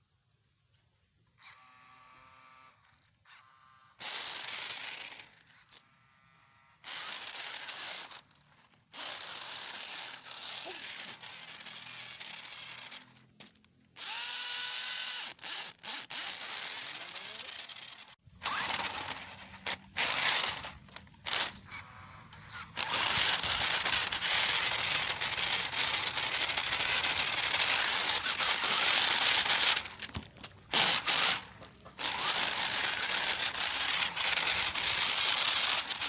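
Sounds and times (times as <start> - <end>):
electric motor whining: 1.4 - 36.0
rushing and scraping: 22.5 - 36.0.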